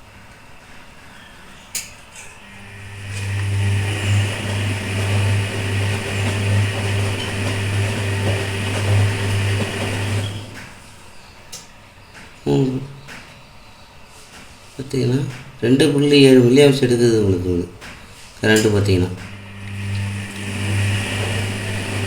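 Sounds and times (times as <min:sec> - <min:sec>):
washing machine humming: 0:00.0 - 0:22.0
water swishing hiss: 0:02.5 - 0:10.8, 0:19.4 - 0:22.0
washing machine motor click: 0:02.7 - 0:10.8, 0:18.5 - 0:22.0.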